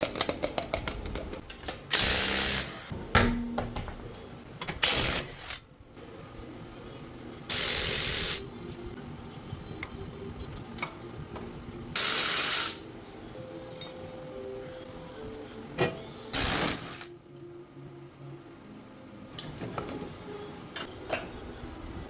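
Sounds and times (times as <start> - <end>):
air tool hissing: 7.5 - 8.4, 12.0 - 12.9.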